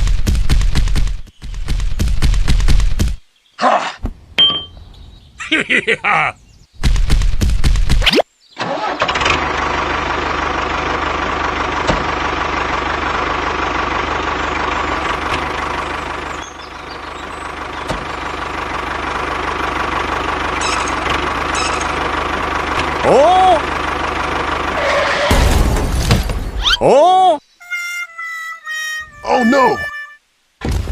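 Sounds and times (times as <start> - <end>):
tractor engine running: 0.0 - 3.2, 8.6 - 26.8.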